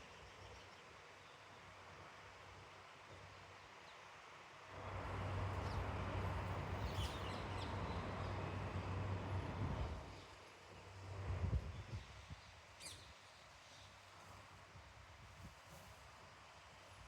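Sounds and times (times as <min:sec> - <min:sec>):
vehicle engine hum: 0:04.7 - 0:10.1
road noise: 0:04.7 - 0:11.5.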